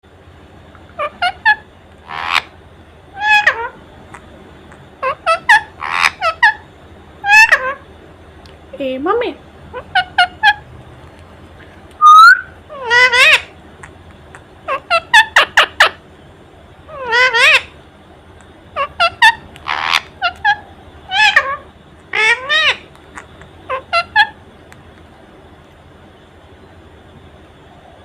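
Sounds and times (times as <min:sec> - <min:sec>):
parrot chirping and calling: 0:00.9 - 0:02.6, 0:03.2 - 0:04.2, 0:05.0 - 0:07.9, 0:09.7 - 0:10.6, 0:12.0 - 0:13.6, 0:14.6 - 0:16.0, 0:16.9 - 0:17.8, 0:18.7 - 0:24.4
parrot whistle: 0:12.0 - 0:13.5, 0:18.8 - 0:22.8, 0:23.7 - 0:24.4.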